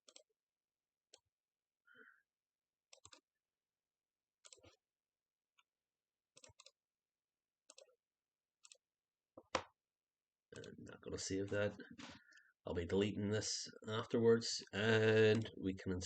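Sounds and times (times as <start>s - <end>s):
computer mouse clicks: 0.0s - 0.3s, 2.9s - 3.2s, 4.4s - 4.8s, 6.4s - 6.8s.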